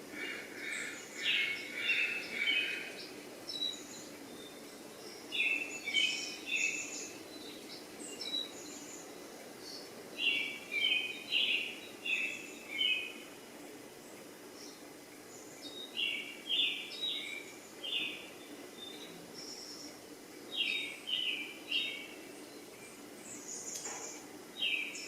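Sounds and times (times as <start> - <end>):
small bird chirping: 0.7 - 13.2, 14.0 - 25.0.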